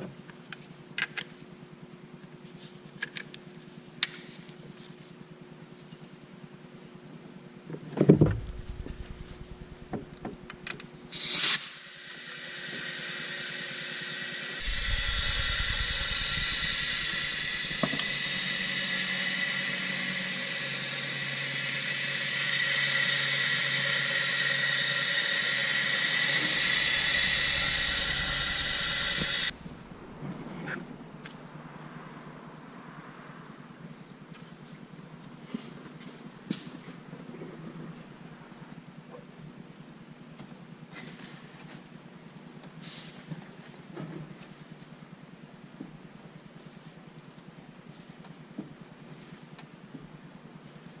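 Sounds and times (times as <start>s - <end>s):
low rumble: 8.2s - 10.7s, 14.6s - 18.8s, 26.4s - 31.1s
compressed air hissing: 8.4s - 10.5s, 11.1s - 30.6s.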